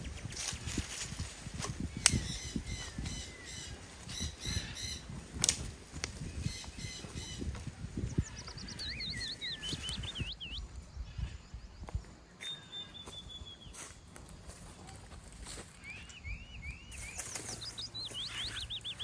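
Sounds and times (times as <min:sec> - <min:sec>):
wild birds calling: 0:00.0 - 0:13.8, 0:15.6 - 0:19.0
sharp clicks: 0:05.4 - 0:06.2.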